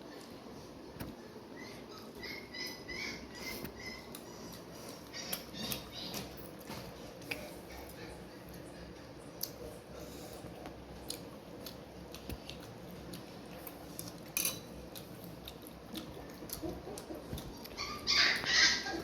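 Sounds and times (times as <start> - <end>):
eating clicks and smacks: 4.1 - 9.6, 10.6 - 18.5.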